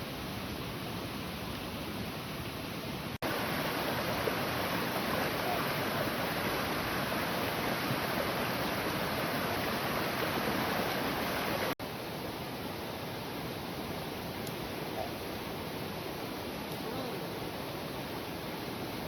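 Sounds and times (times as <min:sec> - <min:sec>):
heavy rain pouring: 0:03.2 - 0:11.8.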